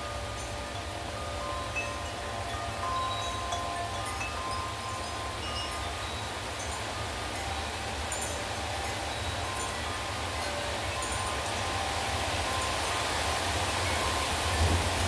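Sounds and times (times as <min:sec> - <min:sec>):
heavy rain hiss: 0:00.0 - 0:15.0
wind chimes ringing: 0:00.0 - 0:15.0
low wind rumble: 0:09.6 - 0:15.0.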